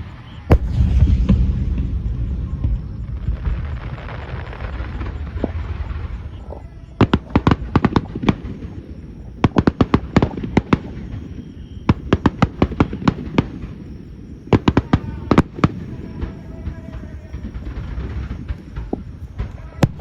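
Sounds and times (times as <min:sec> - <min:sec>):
fireworks cracking: 0:00.0 - 0:20.0
low steady rumble: 0:00.5 - 0:07.7.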